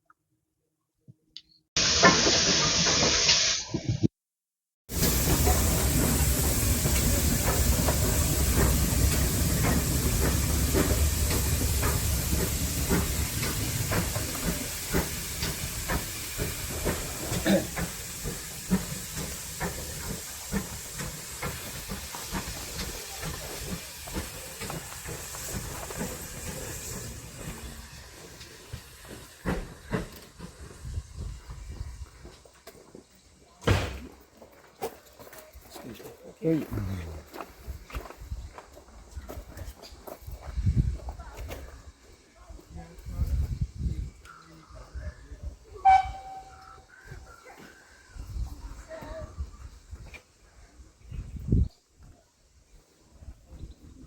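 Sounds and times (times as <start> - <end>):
steam hissing: 1.8 - 3.9, 4.9 - 32.4, 45.7 - 47.3
locomotive low rumble: 42.4 - 47.4.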